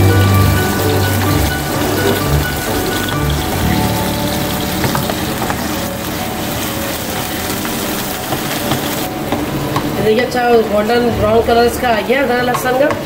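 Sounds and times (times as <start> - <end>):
paste sizzling in hot oil: 0.0 - 9.3.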